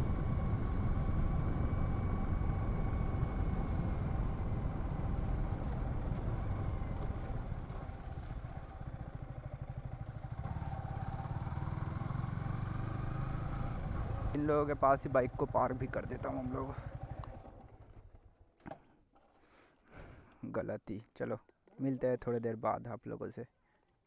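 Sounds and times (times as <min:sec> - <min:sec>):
motorcycle engine running: 0:00.0 - 0:18.4.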